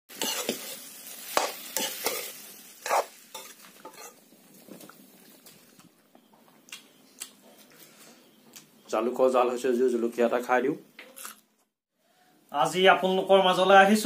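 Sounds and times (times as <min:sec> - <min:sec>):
spatula scraping a pan: 0:00.1 - 0:04.2
food sizzling in a wok: 0:00.1 - 0:05.4.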